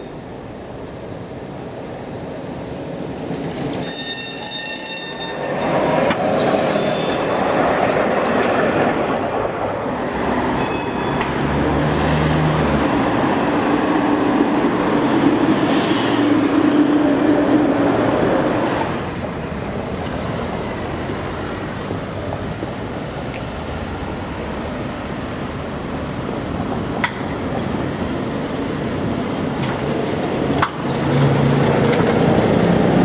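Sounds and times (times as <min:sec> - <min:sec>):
tram rolling rumble: 0:00.0 - 0:33.0
tram motor hum: 0:00.1 - 0:33.0
tram wheels squealing: 0:02.8 - 0:26.8.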